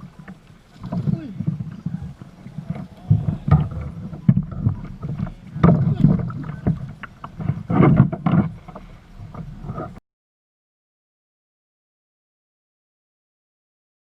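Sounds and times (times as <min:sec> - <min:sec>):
knocks and bumps on a kayak: 0:00.0 - 0:10.0.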